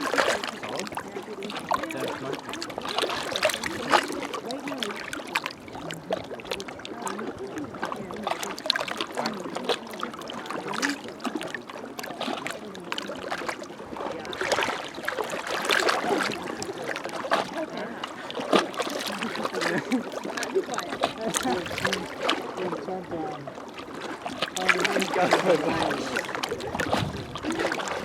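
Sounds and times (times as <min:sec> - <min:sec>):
small waves lapping on shore: 0:00.0 - 0:28.0.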